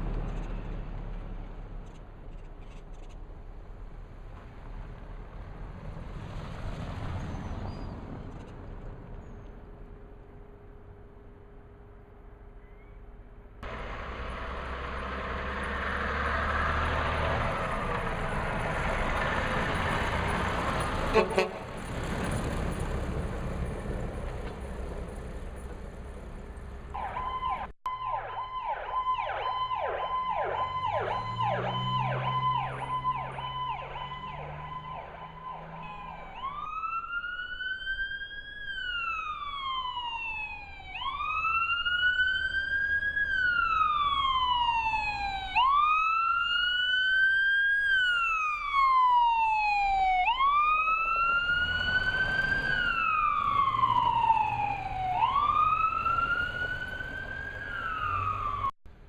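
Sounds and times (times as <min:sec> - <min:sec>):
vehicle engine rumbling: 0:00.0 - 0:59.0
emergency vehicle siren: 0:13.6 - 0:58.8.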